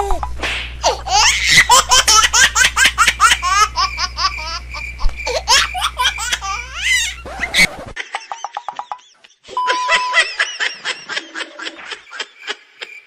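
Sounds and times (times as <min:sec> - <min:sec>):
steady low hum: 0:00.0 - 0:08.0
high-pitched giggling laughter: 0:00.8 - 0:13.0.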